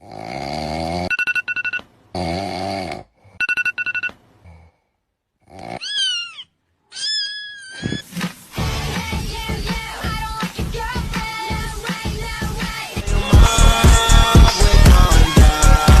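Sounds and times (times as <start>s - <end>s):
person snoring: 0.0s - 1.1s, 2.2s - 3.4s, 4.4s - 5.8s
rapid electronic alarm beeps: 1.1s - 1.8s, 3.4s - 4.1s
cat meowing: 5.8s - 8.1s
loud music with singing: 8.6s - 16.0s.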